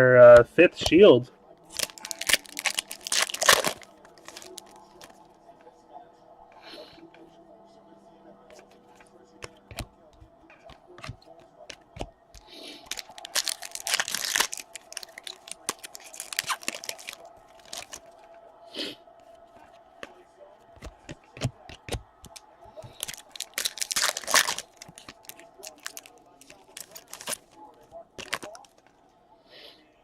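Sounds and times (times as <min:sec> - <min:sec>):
card packs tearing and crinkling: 0:01.7 - 0:05.2, 0:12.4 - 0:18.2, 0:20.8 - 0:27.6, 0:28.2 - 0:28.8
cards flicked: 0:09.4 - 0:09.9, 0:20.8 - 0:27.5.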